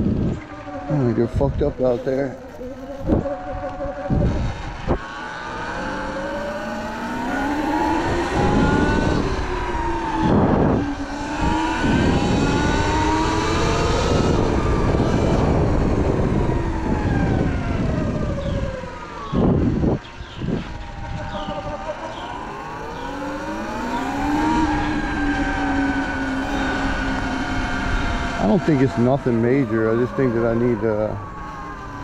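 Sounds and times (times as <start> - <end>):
electric motor and belt whine: 0.0 - 32.0
wind: 0.0 - 32.0.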